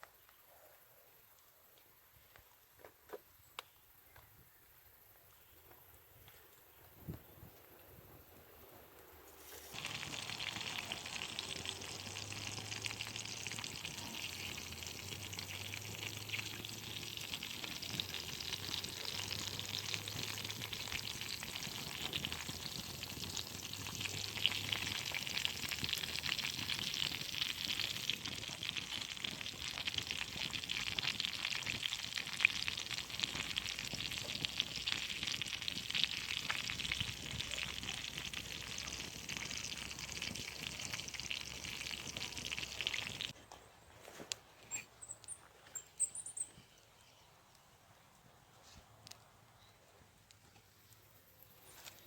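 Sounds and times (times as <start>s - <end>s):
food sizzling and popping: 9.0s - 43.4s.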